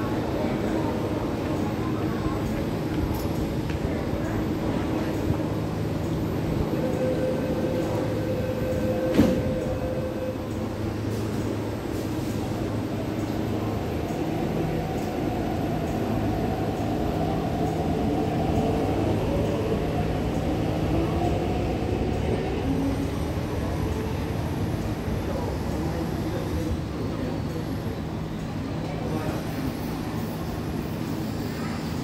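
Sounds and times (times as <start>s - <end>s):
electric train rumbling: 0.0s - 32.0s
faint steady tones: 0.1s - 11.9s.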